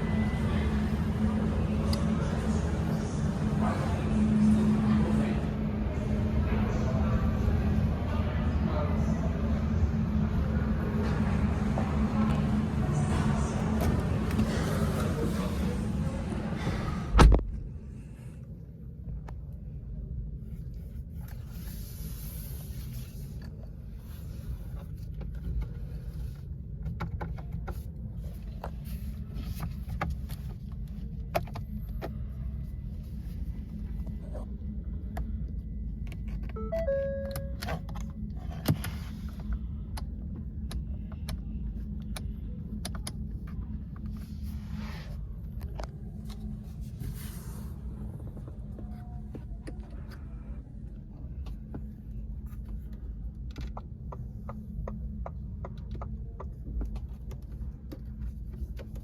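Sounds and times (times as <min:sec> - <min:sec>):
short beeps: 0:36.6 - 0:37.7.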